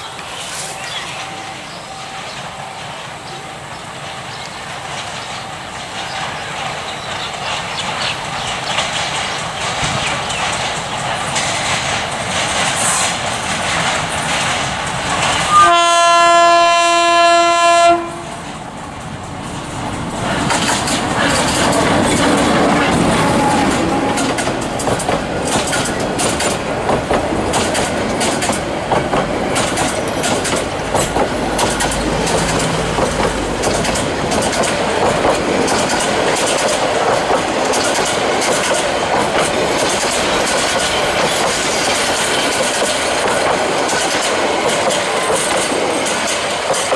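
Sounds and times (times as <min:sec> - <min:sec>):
train coaches rumbling: 0:00.0 - 0:46.9
wheels clacking over rail joints: 0:00.1 - 0:46.9
locomotive horn blast: 0:15.5 - 0:18.4, 0:22.8 - 0:24.3.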